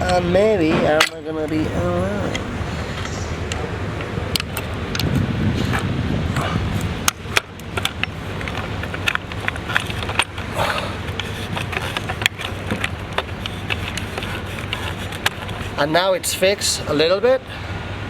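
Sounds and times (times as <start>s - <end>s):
steady low rumble: 0.0s - 18.0s
board parts clicking and knocking: 4.0s - 15.8s.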